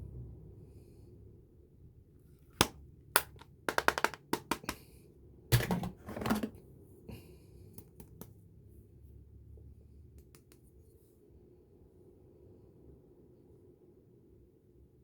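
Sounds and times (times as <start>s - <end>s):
small hard items clicking: 3.2s - 4.8s.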